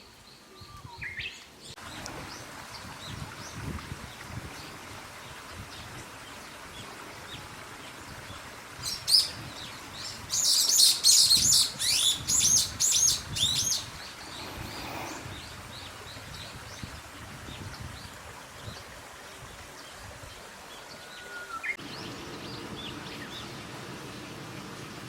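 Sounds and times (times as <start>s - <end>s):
songbird chirping: 8.8s - 16.5s.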